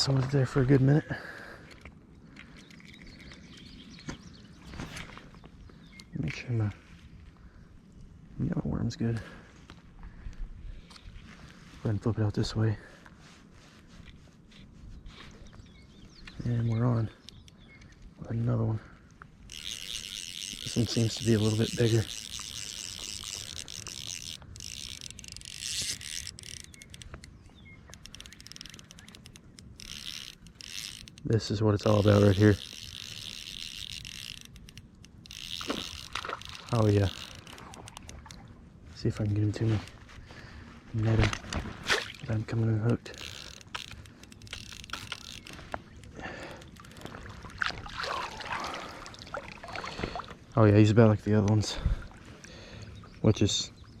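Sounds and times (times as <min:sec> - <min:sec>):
water splashing and sloshing: 0:35.5 - 0:39.0, 0:41.0 - 0:42.6, 0:43.5 - 0:50.8, 0:51.8 - 0:52.6.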